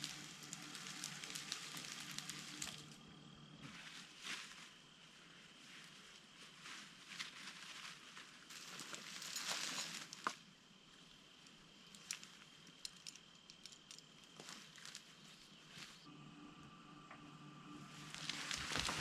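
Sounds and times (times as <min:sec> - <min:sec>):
dry brush rustling: 0:00.0 - 0:02.9, 0:03.6 - 0:10.4, 0:18.0 - 0:19.0.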